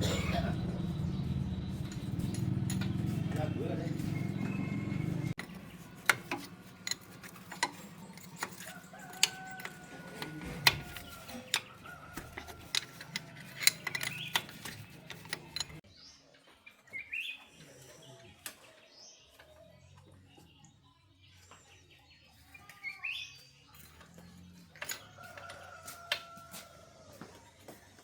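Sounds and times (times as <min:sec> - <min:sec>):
hand tools clinking on metal: 0:01.7 - 0:15.8, 0:23.7 - 0:26.7.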